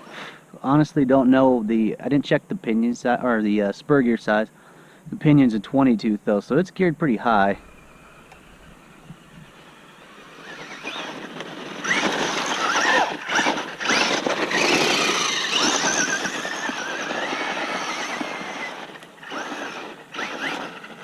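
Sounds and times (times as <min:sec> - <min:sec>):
rc truck motor whining: 0:07.2 - 0:21.0
tyre noise on pavement: 0:08.4 - 0:21.0.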